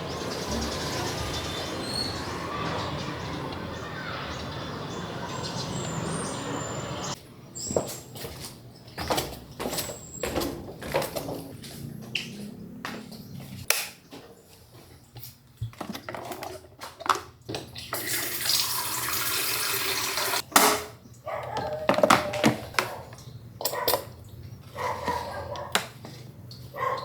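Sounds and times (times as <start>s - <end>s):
water tap running: 17.9s - 20.4s.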